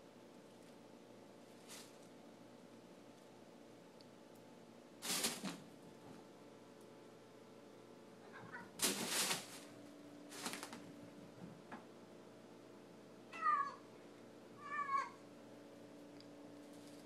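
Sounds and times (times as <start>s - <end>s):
plastic bag rustling: 1.6s - 2.1s, 5.0s - 5.7s, 8.6s - 10.9s
cat meowing: 8.2s - 8.8s, 13.3s - 13.8s, 14.6s - 15.2s.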